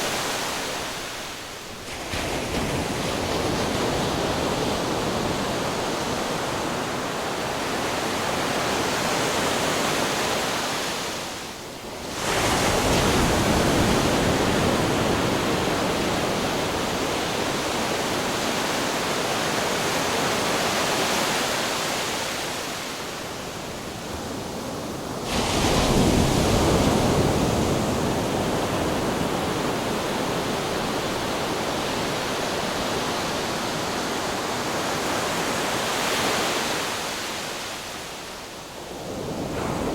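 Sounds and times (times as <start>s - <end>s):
surf washing against rocks: 12.1s - 37.8s
wave crashing: 25.2s - 37.2s.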